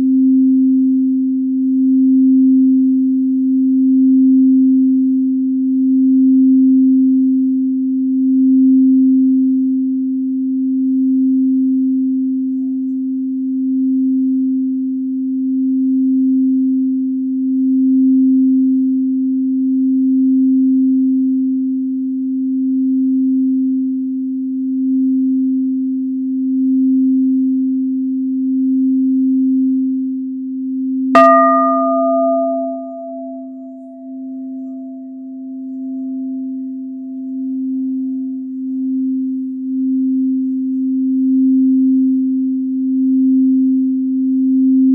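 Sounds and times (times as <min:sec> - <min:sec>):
low singing bowl deep tone: 0:00.0 - 0:44.9
higher-pitched singing bowl struck: 0:31.2 - 0:38.3.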